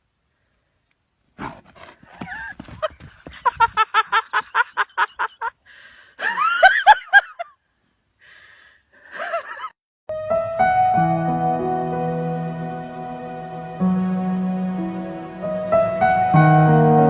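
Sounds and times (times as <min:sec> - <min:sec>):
person laughing: 0:02.3 - 0:05.6, 0:06.2 - 0:07.5.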